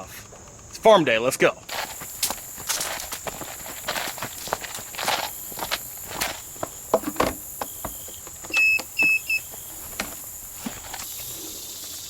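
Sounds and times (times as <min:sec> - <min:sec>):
car warning chime beeps: 0:08.5 - 0:09.6.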